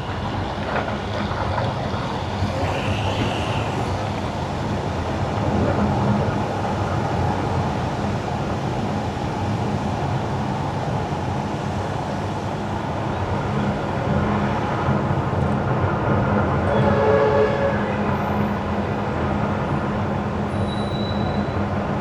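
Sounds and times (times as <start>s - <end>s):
faint high whining tones: 2.0s - 4.8s
car tyres on wet road: 18.2s - 22.0s.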